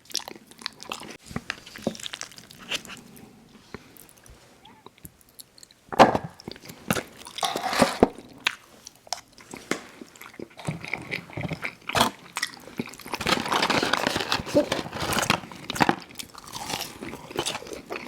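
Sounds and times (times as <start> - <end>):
wet chewing: 6.4 - 13.3
crunchy bites of fried food: 15.2 - 18.0.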